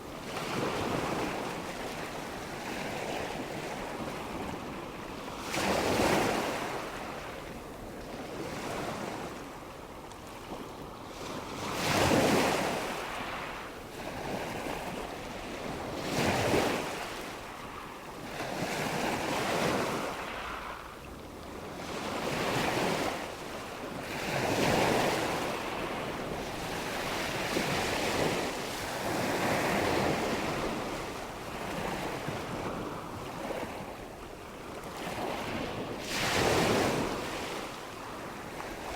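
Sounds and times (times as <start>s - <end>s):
ocean waves washing ashore: 14.8s - 38.9s.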